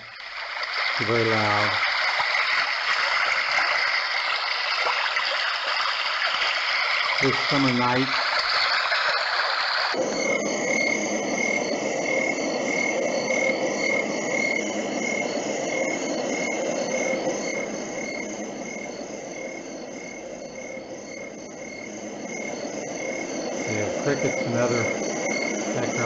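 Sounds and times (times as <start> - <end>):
crickets chirping in pulses: 0.0 - 26.0
night-time background noise: 0.0 - 26.0
recorded brook sound: 6.6 - 9.7.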